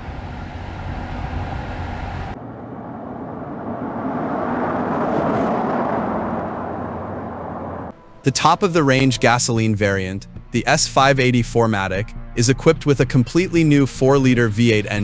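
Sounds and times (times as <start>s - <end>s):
car driving past: 0.0s - 8.3s
car engine rumble: 0.0s - 13.6s.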